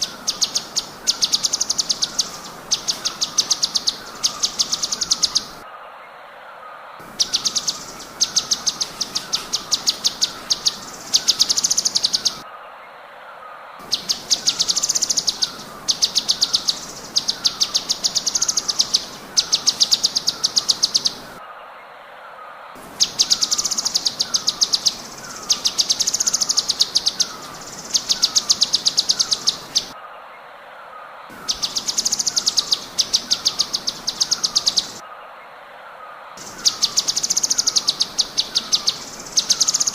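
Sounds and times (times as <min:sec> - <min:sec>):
bird rapid high trills: 0:07.0 - 0:12.4, 0:36.4 - 0:39.9.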